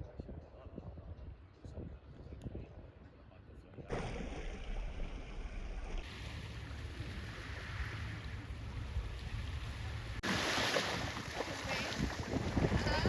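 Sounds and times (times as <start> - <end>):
ocean surf washing in: 6.0 - 13.0
wind buffeting microphone: 6.0 - 13.0.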